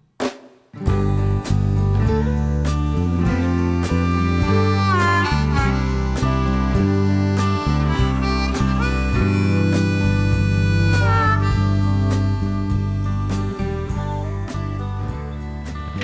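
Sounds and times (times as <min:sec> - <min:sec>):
steady drum beat: 0:00.2 - 0:14.2
bass line: 0:00.8 - 0:16.0
harmonica lead: 0:00.9 - 0:15.2.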